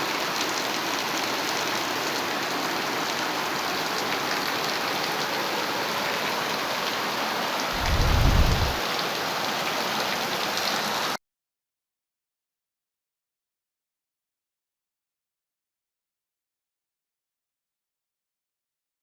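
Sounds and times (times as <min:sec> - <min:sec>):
heavy rain falling: 0:00.0 - 0:11.2
low rumble: 0:07.8 - 0:08.8.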